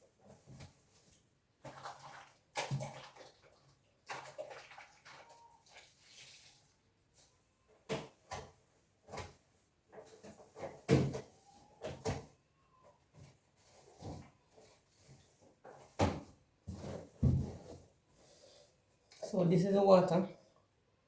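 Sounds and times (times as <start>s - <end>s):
water sloshing in a container: 1.5s - 6.9s.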